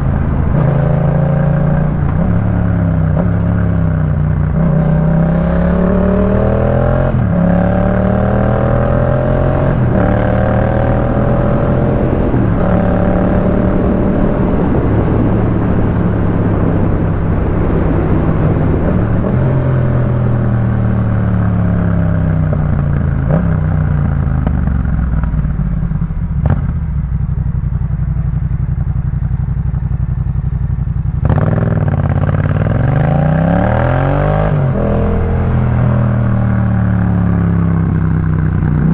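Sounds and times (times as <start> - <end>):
wind rushing: 0.0 - 3.9, 4.6 - 21.3
motorcycle engine revving: 0.0 - 38.9.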